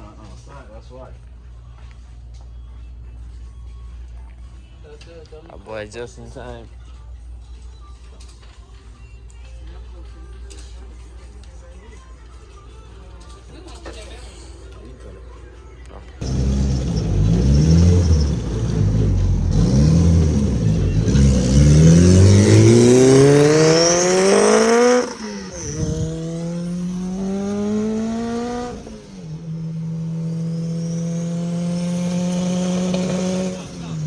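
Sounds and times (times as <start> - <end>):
car engine accelerating hard: 16.2 - 34.0.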